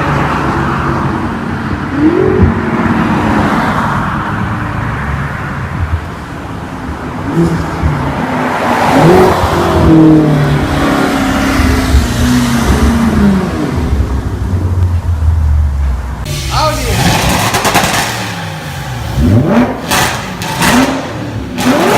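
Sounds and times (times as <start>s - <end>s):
sports car accelerating: 7.1s - 14.9s, 16.3s - 21.9s.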